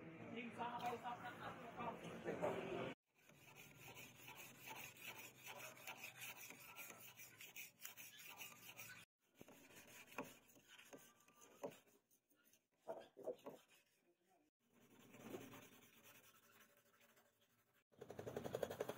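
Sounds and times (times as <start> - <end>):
file rasping on steel blade: 3.2 - 14.0.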